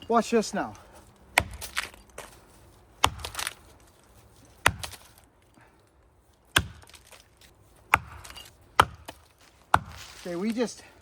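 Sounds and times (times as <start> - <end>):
axe chopping wood: 1.3 - 2.0, 3.0 - 3.6, 4.6 - 5.2, 6.5 - 10.5.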